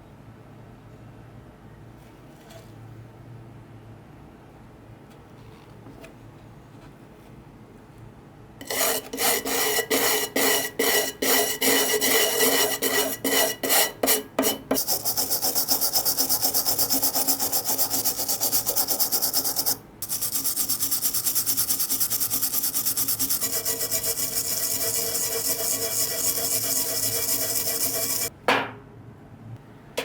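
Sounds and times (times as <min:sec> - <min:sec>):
scraping on metal box: 0:08.6 - 0:28.3.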